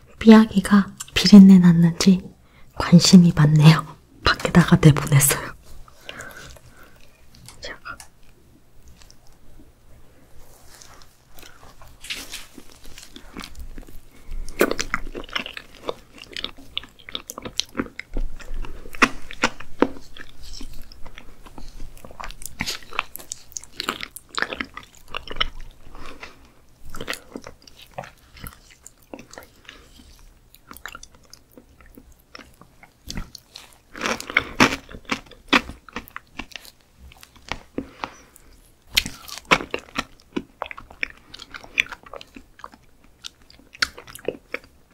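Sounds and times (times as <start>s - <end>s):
wet chewing: 10.7s - 44.9s.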